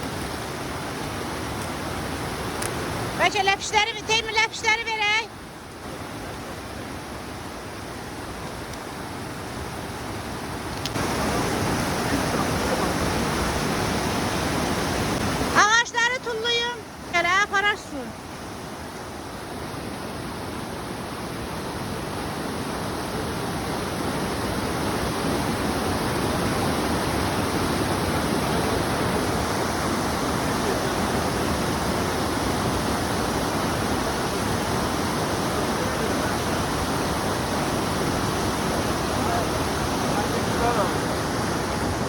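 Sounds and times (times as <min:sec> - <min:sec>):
flowing water rushing: 0:00.0 - 0:42.0.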